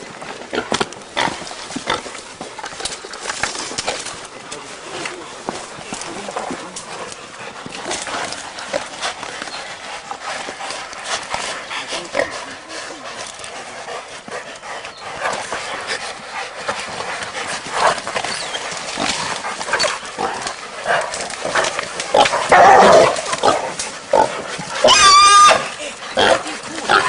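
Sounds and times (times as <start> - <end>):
dogs barking: 15.3 - 27.0
pig squealing: 24.8 - 27.0.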